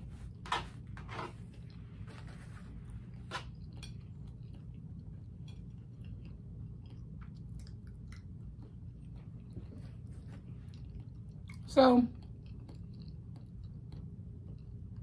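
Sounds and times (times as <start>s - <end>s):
person chewing: 3.1s - 14.9s.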